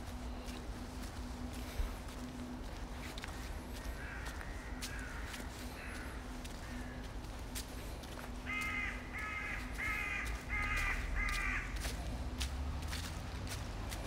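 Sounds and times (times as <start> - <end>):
faint footsteps: 0.0 - 14.0
bird cawing: 3.2 - 7.3, 8.3 - 12.0.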